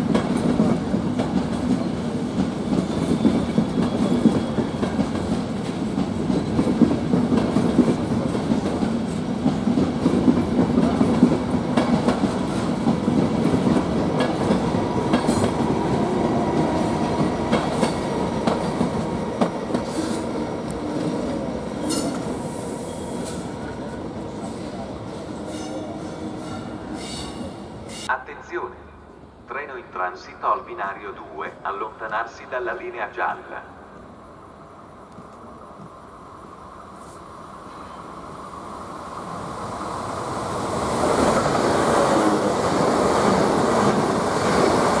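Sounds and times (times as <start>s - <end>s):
wheels clacking over rail joints: 0.0s - 15.7s.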